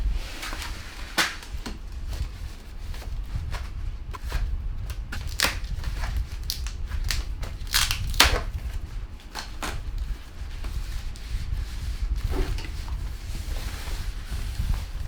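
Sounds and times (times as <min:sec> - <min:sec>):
packaging crinkling and crackling: 0:00.0 - 0:11.3.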